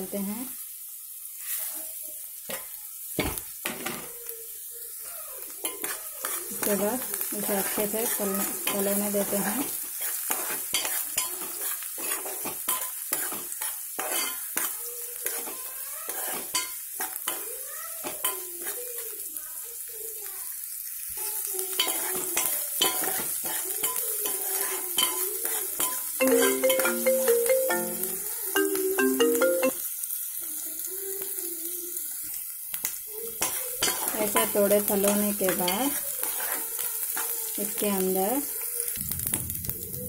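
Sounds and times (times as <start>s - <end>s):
onions and spices sizzling in oil: 0.0s - 40.0s
spatula scraping a metal pot: 10.0s - 16.7s, 35.1s - 37.3s
wavering background tune: 26.2s - 29.8s.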